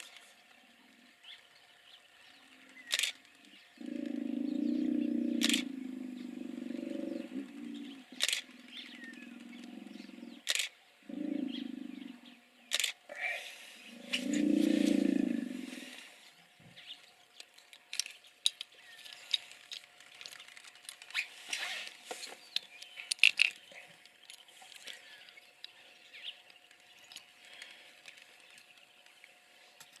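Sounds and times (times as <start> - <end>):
hippopotamus deep grunt: 3.8 - 12.4, 13.1 - 16.1
short clicks and chirps: 12.7 - 13.0.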